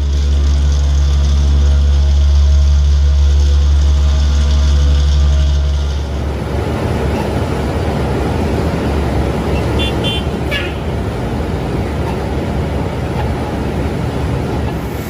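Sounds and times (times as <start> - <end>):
heavy machine engine running: 0.0 - 15.0.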